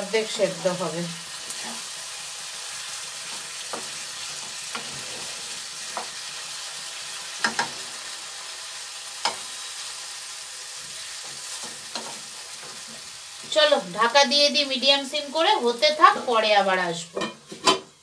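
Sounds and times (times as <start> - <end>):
food sizzling in a pan: 0.0 - 18.0
spatula scraping and knocking pan: 3.2 - 6.4, 7.3 - 8.0, 9.2 - 9.6, 10.8 - 13.7, 17.1 - 18.0.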